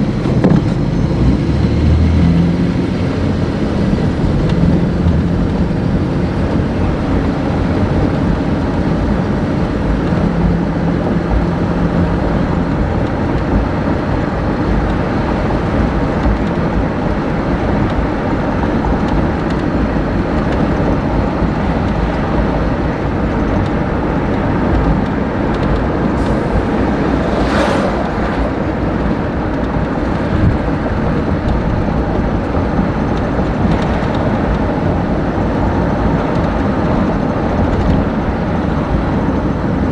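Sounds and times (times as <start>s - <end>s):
vehicle low rumble: 0.0s - 39.9s
short rush of noise: 26.0s - 30.2s.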